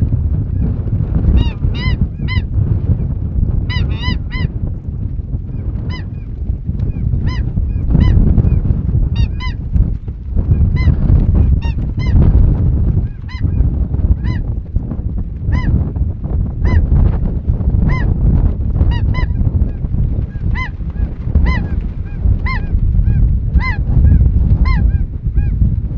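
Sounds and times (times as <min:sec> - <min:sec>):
steady low rumble: 0:00.0 - 0:25.9
geese honking: 0:01.4 - 0:02.5, 0:03.7 - 0:04.5, 0:21.4 - 0:21.8, 0:22.4 - 0:22.7.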